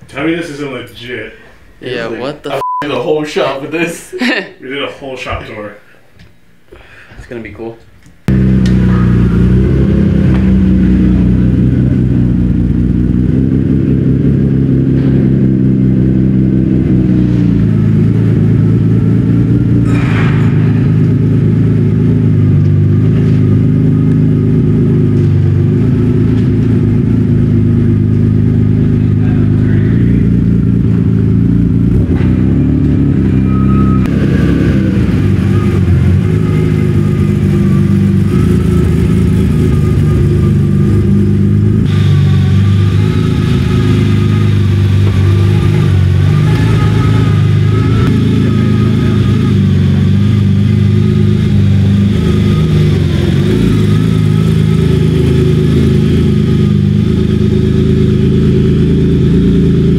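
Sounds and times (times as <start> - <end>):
car engine droning: 8.2 - 59.9
short sharp sound: 19.8 - 22.9.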